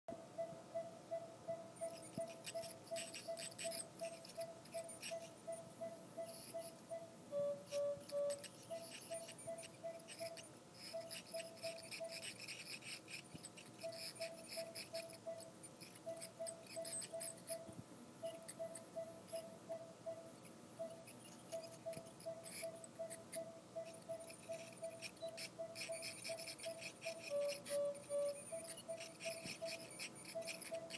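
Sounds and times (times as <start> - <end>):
short electronic beeps: 0.4 - 12.1, 13.8 - 30.8
dental scaler whining: 1.5 - 30.9
scaler tip scratching teeth: 1.7 - 30.9.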